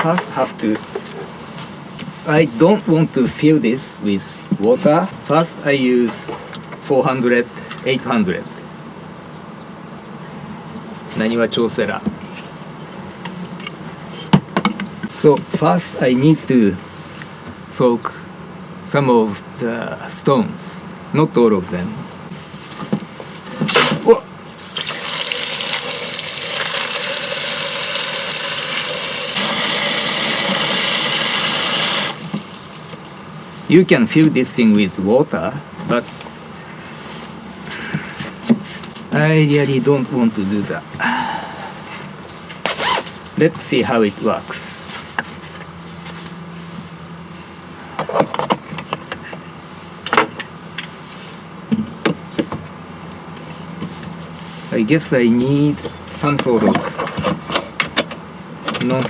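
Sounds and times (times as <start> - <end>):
tap water gushing into container: 24.7 - 33.4.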